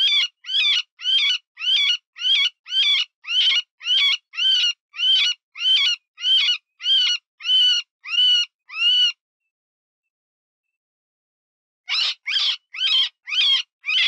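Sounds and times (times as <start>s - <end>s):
rabbit distress squeals: 11.9s - 14.0s.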